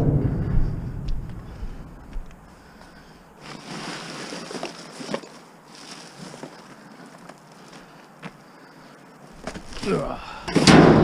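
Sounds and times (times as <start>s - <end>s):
rustling of bags: 2.6s - 10.6s.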